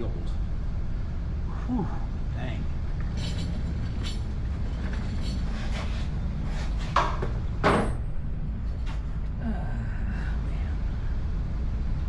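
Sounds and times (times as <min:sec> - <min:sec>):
steady low rumble: 0:00.0 - 0:12.0
metal parts knocking and clanking: 0:03.1 - 0:05.4.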